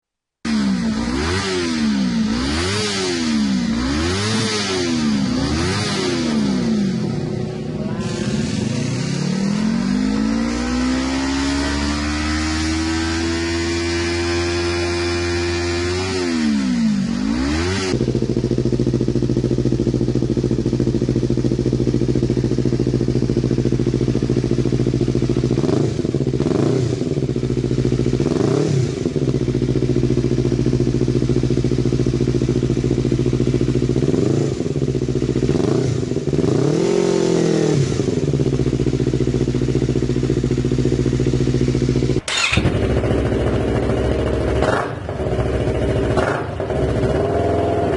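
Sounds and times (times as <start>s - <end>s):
motorcycle engine idling: 3.3s - 11.1s, 16.8s - 47.9s.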